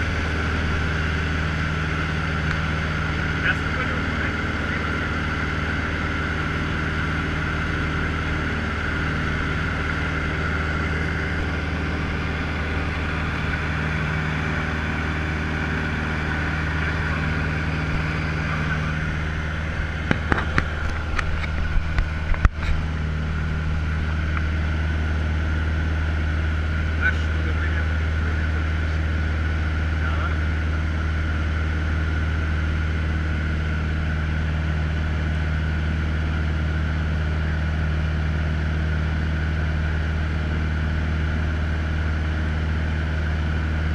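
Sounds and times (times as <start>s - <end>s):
propeller plane engine droning: 0.0s - 43.9s
sharp clicks and knocks: 20.0s - 22.8s.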